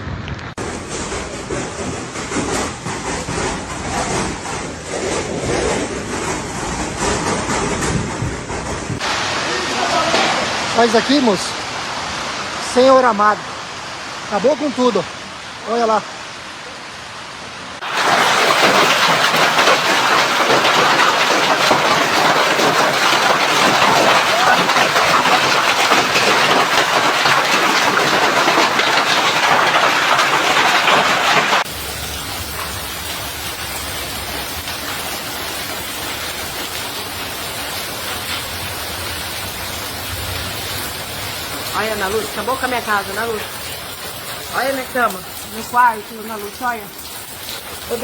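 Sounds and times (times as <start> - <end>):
steady rushing noise: 0.0 - 13.2
hail pelting down: 17.8 - 48.0.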